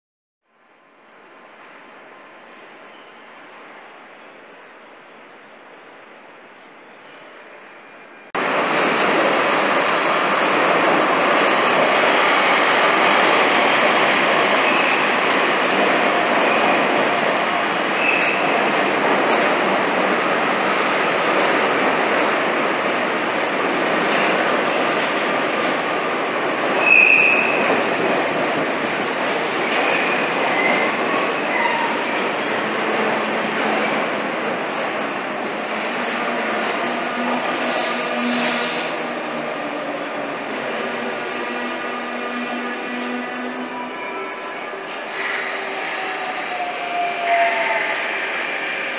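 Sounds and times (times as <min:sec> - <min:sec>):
train rushing into station: 0:00.6 - 0:48.9
high wheel squeal: 0:16.4 - 0:18.5, 0:26.8 - 0:27.6.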